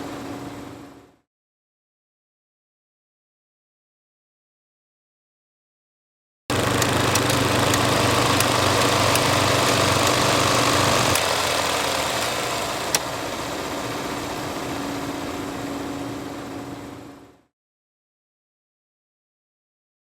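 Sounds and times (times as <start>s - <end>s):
film projector running: 6.5s - 15.9s
clicks and pops: 6.6s - 11.3s.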